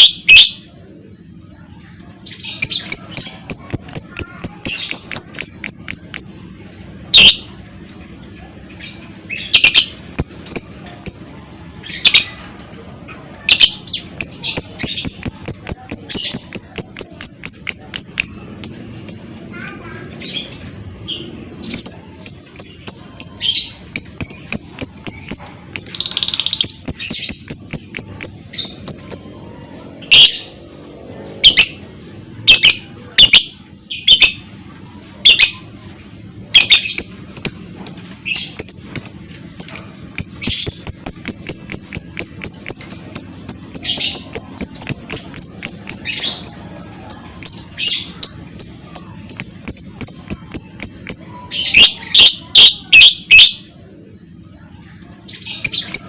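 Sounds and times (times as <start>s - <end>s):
lovebird rapid high chirps: 0.0s - 0.6s, 2.3s - 6.4s, 7.1s - 7.6s, 8.8s - 12.4s, 13.5s - 20.5s, 21.1s - 29.4s, 32.4s - 34.5s, 36.5s - 53.7s, 55.3s - 56.0s.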